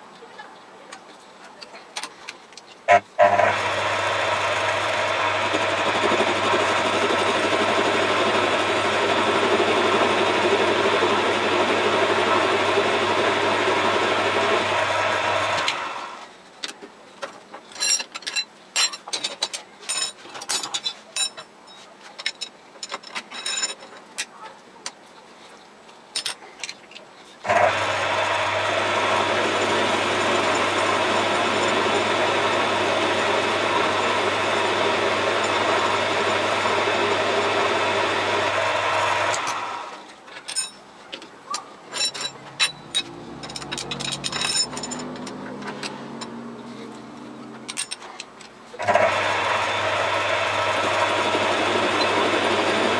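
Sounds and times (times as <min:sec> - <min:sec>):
metal lathe humming: 0:02.9 - 0:16.2, 0:27.5 - 0:39.9, 0:48.8 - 0:52.9
metallic clicks and knocks: 0:40.3 - 0:46.4.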